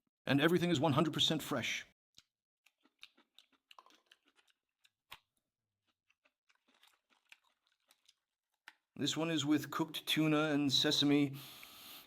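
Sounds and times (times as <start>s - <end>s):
chewing with mouth clicks: 2.1s - 9.0s.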